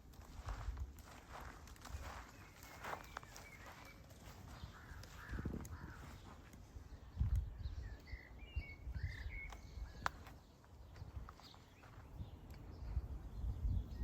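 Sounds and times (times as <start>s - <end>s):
bird chirps: 2.0s - 14.0s
birds cawing: 2.8s - 6.6s.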